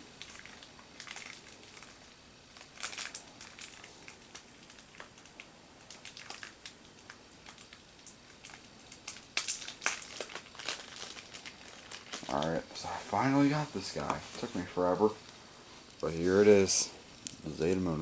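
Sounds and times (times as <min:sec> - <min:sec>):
toy packaging crinkling: 0:00.2 - 0:05.3, 0:05.9 - 0:07.8, 0:08.4 - 0:14.7.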